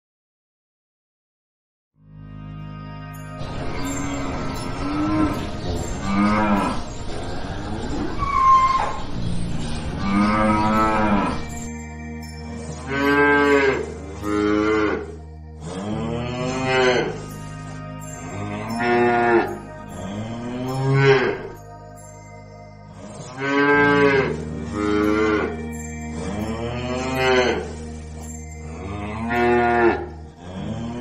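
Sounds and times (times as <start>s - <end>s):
cattle mooing: 4.3s - 9.0s, 10.0s - 11.6s, 12.7s - 17.8s, 18.4s - 21.6s, 22.9s - 27.8s, 28.7s - 31.0s.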